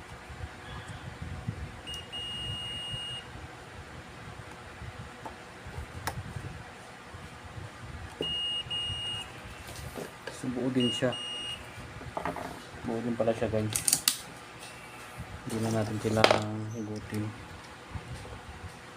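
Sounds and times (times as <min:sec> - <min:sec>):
multimeter high beep: 0:01.9 - 0:03.3, 0:08.2 - 0:09.6, 0:10.7 - 0:11.8.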